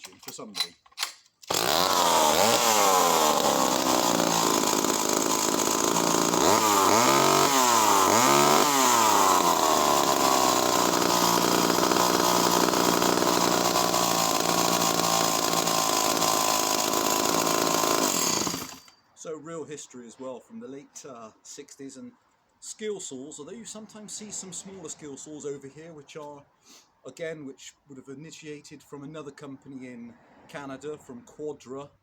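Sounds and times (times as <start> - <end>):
chainsaw revving: 1.5 - 18.9.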